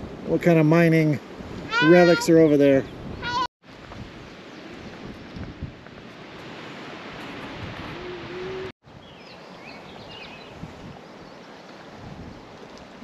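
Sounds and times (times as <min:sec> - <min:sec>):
rushing outdoor ambience: 0:03.7 - 0:13.0.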